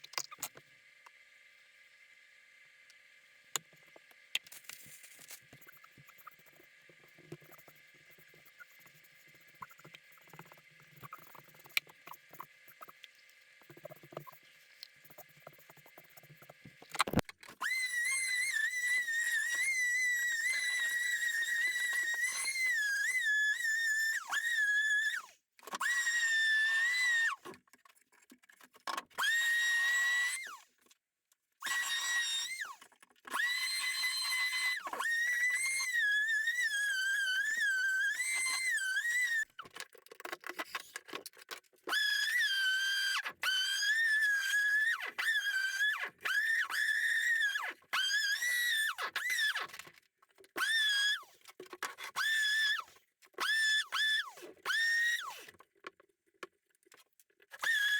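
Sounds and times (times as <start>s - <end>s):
faint clicks and handling noises: 27.4s - 29.2s, 39.5s - 41.9s, 55.4s - 57.7s.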